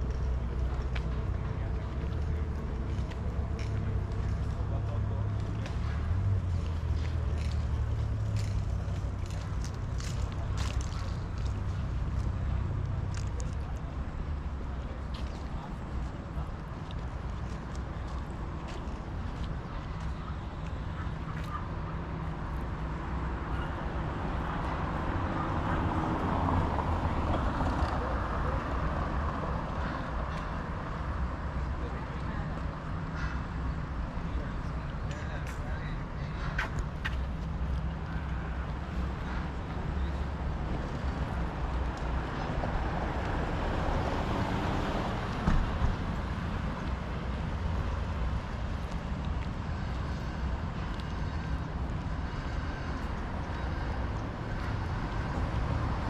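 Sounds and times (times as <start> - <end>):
road traffic rushing past: 0.0 - 56.0
vehicle passing by: 23.0 - 30.4, 37.0 - 56.0.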